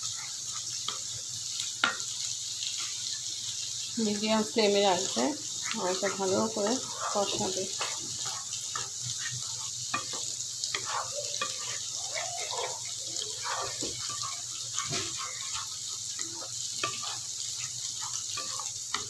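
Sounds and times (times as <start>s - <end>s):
paste sizzling in pan: 0.0s - 19.0s
wooden spatula scraping pan: 4.6s - 19.0s.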